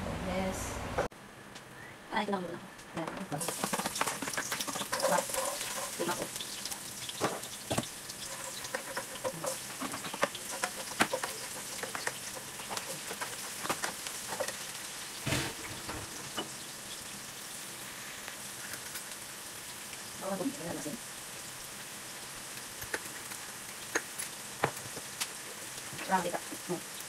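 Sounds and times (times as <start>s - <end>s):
garlic and onion sizzling in oil: 3.2s - 27.0s
spatula scraping and tapping pan: 3.4s - 6.4s, 7.1s - 14.7s.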